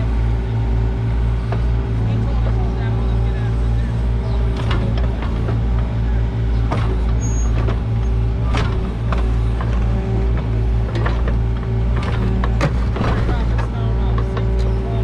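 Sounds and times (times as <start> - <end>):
diesel engine running: 0.0 - 15.0
sharp metallic knocks and clanks: 4.4 - 14.7.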